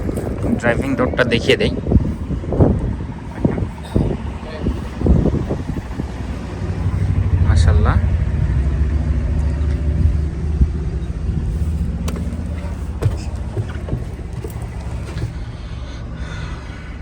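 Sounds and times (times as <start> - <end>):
vehicle engine idling: 0.0 - 16.8
sharp clicks and knocks: 12.0 - 15.4.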